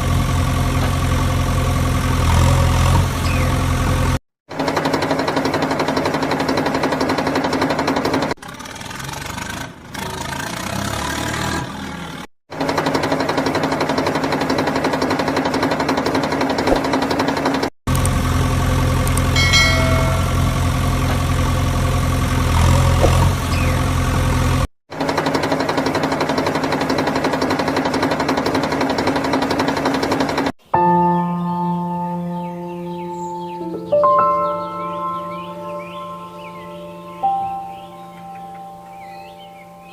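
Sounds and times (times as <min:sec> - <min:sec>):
tractor engine running: 0:00.0 - 0:30.6.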